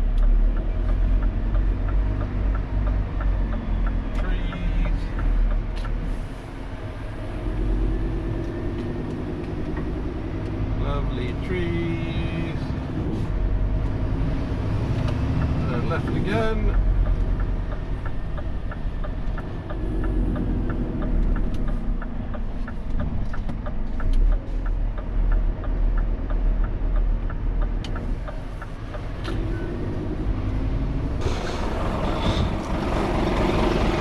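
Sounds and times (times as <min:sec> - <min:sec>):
turn signal ticking: 0:00.0 - 0:31.3
truck engine droning: 0:00.0 - 0:34.0
rushing noise: 0:31.2 - 0:34.0.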